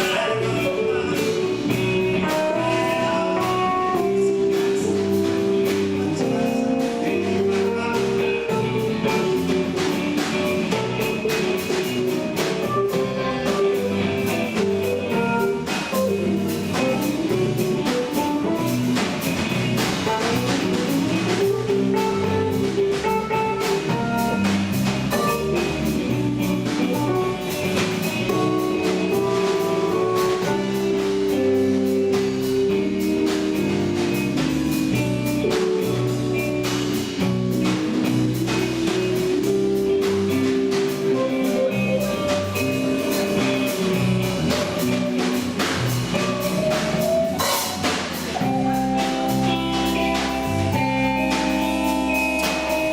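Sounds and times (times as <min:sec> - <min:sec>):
drum kit beat: 0:00.0 - 0:52.9
guitar lines: 0:00.0 - 0:52.9
rock band playing: 0:00.0 - 0:52.9.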